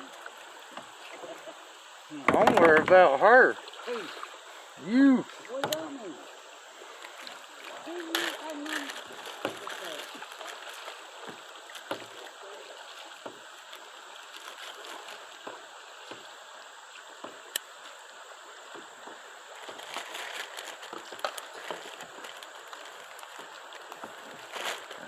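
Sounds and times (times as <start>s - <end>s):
river water rushing: 0.0s - 25.0s
light clicks and knocks: 2.2s - 3.1s.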